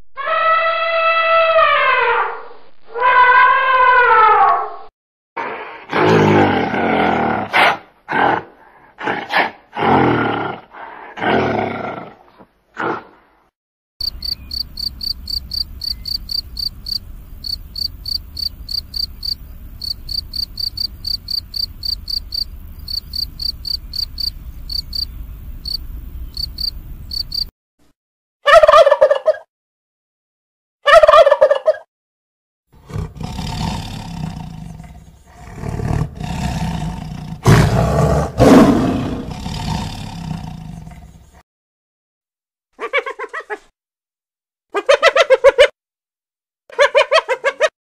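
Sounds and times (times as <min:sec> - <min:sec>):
tiger roaring and growling: 0:05.4 - 0:12.2, 0:32.8 - 0:41.2
cricket chirping: 0:14.0 - 0:27.5.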